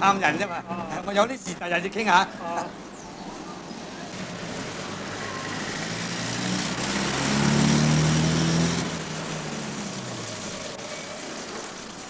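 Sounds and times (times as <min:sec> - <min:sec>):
traffic hiss: 0:00.0 - 0:12.0
motor vehicle engine running: 0:03.9 - 0:12.0.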